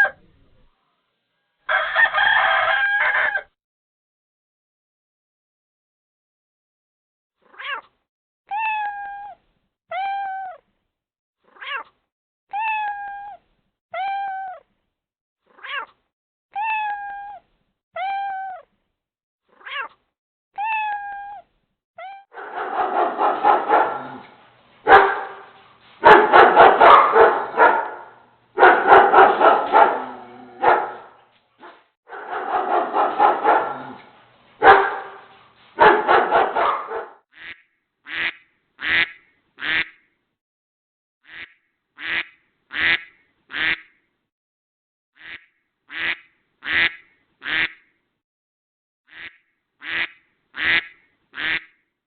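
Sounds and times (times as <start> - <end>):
cat meowing: 7.5 - 7.9, 8.5 - 10.6, 11.5 - 13.4, 14.0 - 14.6, 15.5 - 16.0, 16.6 - 17.4, 18.0 - 18.7, 19.5 - 20.0, 20.6 - 22.4
dog barking rapidly: 22.3 - 34.0, 34.6 - 37.2.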